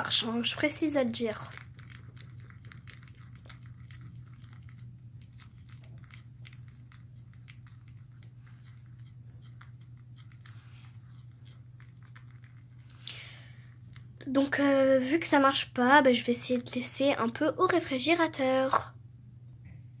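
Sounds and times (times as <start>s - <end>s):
steady low hum: 0.0s - 20.0s
slime clicking and crackling: 0.8s - 13.0s.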